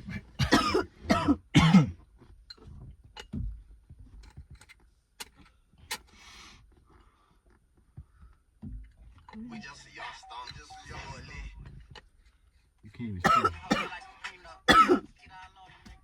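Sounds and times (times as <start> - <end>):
person coughing hard: 0.1 - 2.0, 13.2 - 13.9, 14.7 - 15.1.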